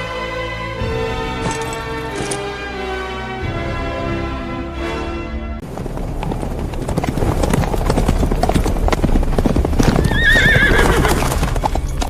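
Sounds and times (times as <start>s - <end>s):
horse hooves galloping: 1.4s - 2.4s, 5.6s - 12.0s
horse whinnying: 9.8s - 11.8s.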